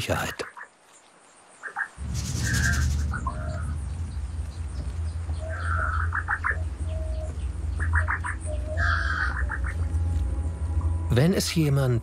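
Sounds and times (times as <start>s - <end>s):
bird chirps: 1.6s - 10.9s
low drone: 2.0s - 12.0s.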